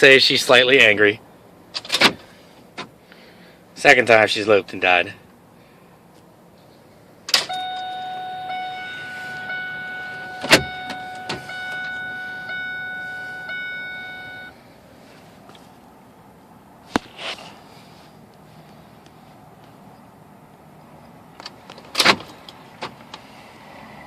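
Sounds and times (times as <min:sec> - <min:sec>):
high electronic warning tone: 0:07.5 - 0:14.6.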